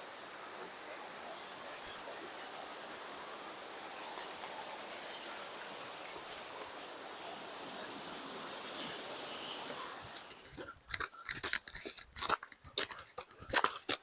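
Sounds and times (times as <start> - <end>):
distant waterfall rushing: 0.0 - 10.5.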